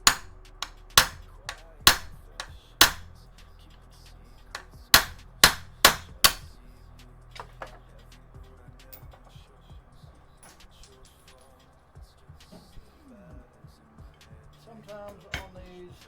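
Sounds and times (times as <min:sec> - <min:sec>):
hammer striking metal: 0:00.0 - 0:03.2, 0:04.5 - 0:06.6, 0:07.4 - 0:07.8, 0:15.0 - 0:15.8.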